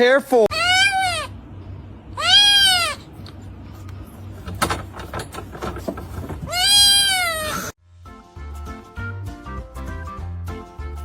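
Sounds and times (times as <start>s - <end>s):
pet crying: 0.5s - 1.4s, 2.1s - 3.2s, 6.5s - 7.7s
handling noises: 3.7s - 7.7s.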